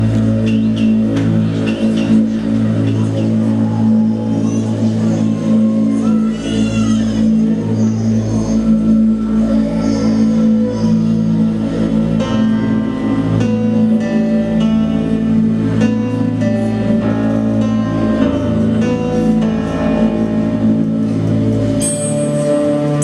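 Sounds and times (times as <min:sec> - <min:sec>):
sustained low accompaniment: 0:00.0 - 0:23.0.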